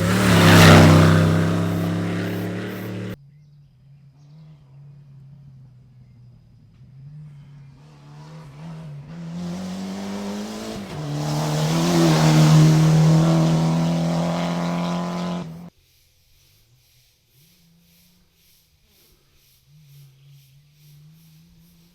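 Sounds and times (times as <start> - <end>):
rally car engine running hard: 0.0 - 3.2, 6.0 - 15.7.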